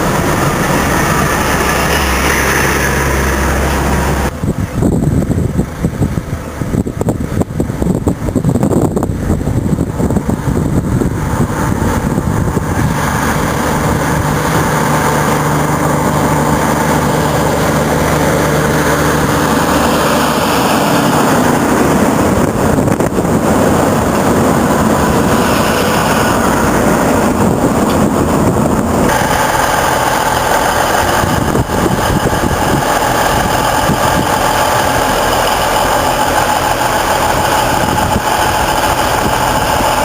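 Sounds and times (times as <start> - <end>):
loud mechanical noise: 0.0 - 40.0
truck engine running: 0.0 - 40.0.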